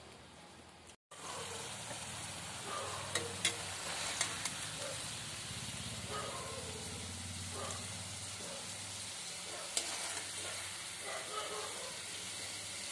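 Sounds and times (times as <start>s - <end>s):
vegetables sizzling in hot oil: 1.1s - 12.9s
spatula stirring and scraping: 3.1s - 5.0s, 9.2s - 11.1s.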